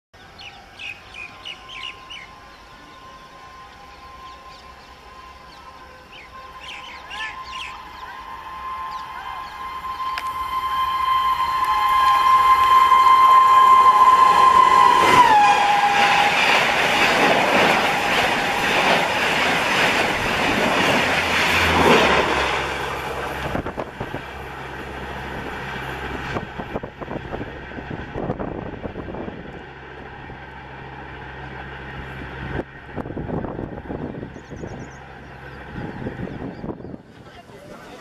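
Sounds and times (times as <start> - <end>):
wind: 0.1 - 38.0
train rushing past: 0.2 - 38.0
locomotive horn blowing: 0.9 - 27.3.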